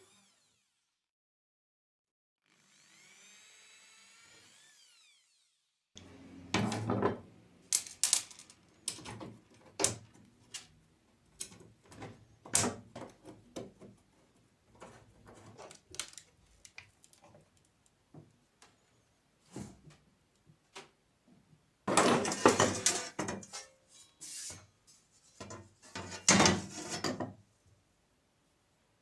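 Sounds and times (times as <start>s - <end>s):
tools and parts clicking: 7.7s - 9.2s.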